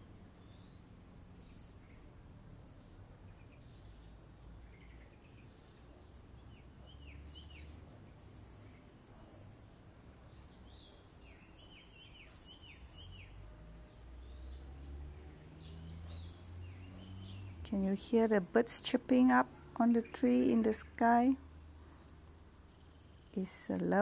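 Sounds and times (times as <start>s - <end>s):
birds chirping: 4.7s - 24.0s.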